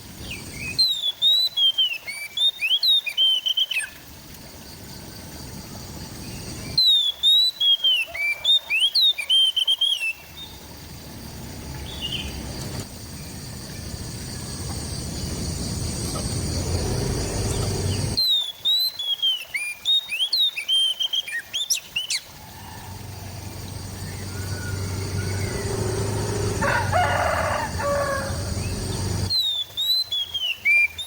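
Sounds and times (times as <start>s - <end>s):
bird singing whistled notes: 0.2s - 4.0s, 6.3s - 10.6s, 11.8s - 12.6s, 13.2s - 31.0s
low rumbling noise: 10.6s - 18.2s, 22.4s - 29.3s.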